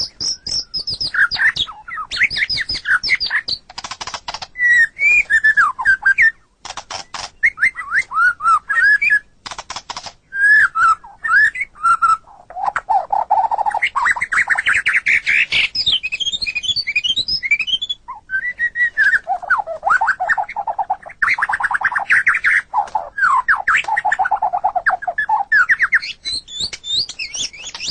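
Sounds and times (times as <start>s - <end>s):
bird singing whistles and trills: 0.0s - 3.6s, 4.5s - 9.4s, 10.3s - 27.9s.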